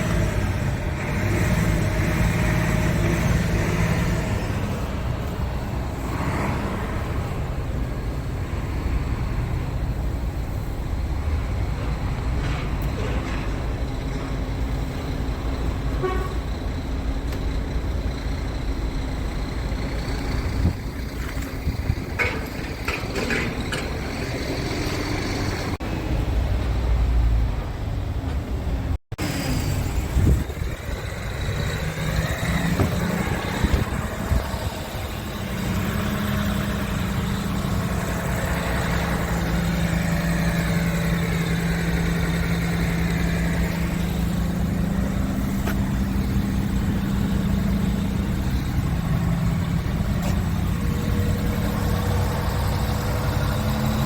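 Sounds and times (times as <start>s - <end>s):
diesel truck engine idling: 0.0s - 54.0s
wind on microphone: 30.0s - 31.8s.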